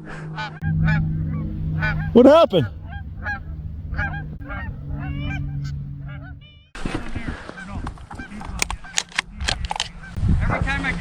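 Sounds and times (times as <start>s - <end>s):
geese honking: 0.6s - 6.5s
background noise: 0.7s - 6.3s.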